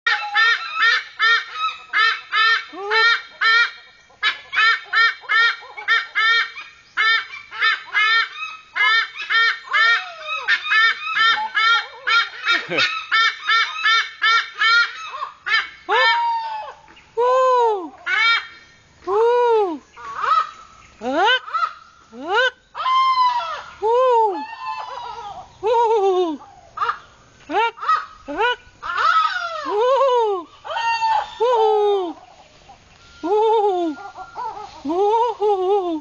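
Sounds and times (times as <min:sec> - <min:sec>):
eagles calling shrilly: 0:00.1 - 0:17.0, 0:19.9 - 0:22.0, 0:26.4 - 0:35.4.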